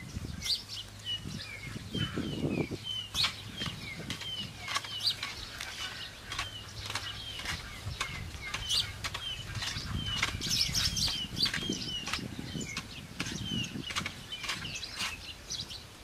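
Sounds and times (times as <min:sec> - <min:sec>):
birds calling with falling chirps: 0:00.0 - 0:16.0
sharp clicks and knocks: 0:03.1 - 0:15.2.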